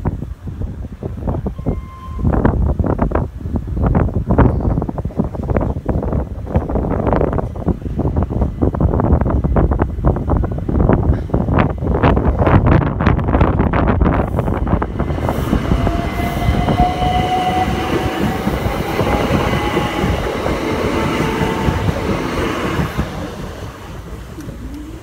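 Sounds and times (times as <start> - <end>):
train wheels rumbling on rail: 0.0 - 25.0
electric train motors whining: 14.4 - 25.0.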